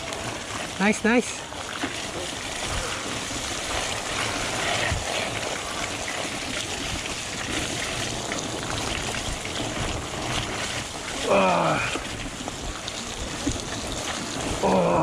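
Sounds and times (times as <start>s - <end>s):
bike tyres rolling on dirt: 0.0s - 14.7s
wind on microphone: 2.3s - 11.2s.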